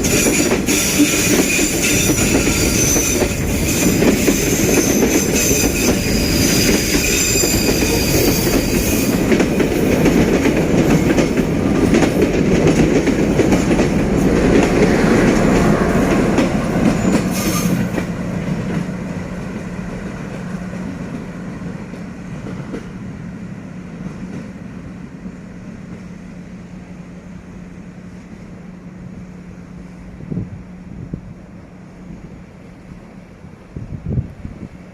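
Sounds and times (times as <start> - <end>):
train wheels squealing: 0.0 - 11.5, 16.0 - 18.1
train carriages rail clatter: 0.0 - 23.1.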